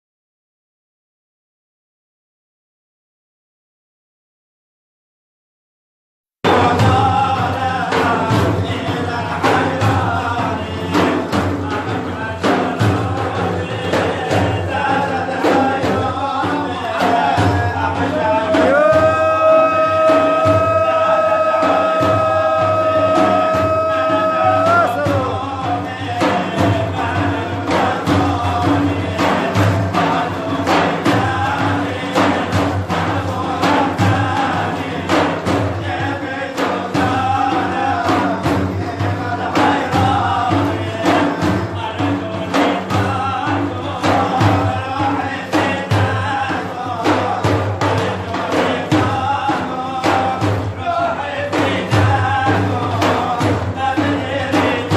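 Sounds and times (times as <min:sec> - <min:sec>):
percussion beat: 0:06.4 - 0:54.9
person singing: 0:06.4 - 0:54.9
sharp drum strikes: 0:06.4 - 0:54.9.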